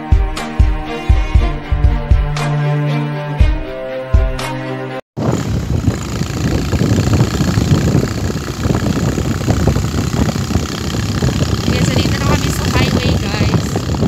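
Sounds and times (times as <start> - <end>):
motorcycle engine running: 5.2 - 14.0.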